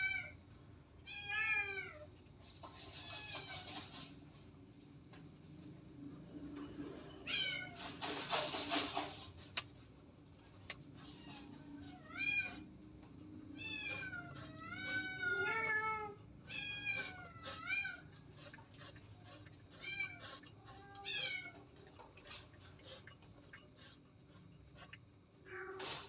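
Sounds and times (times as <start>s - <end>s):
cat meowing: 7.2s - 7.8s, 13.6s - 21.6s.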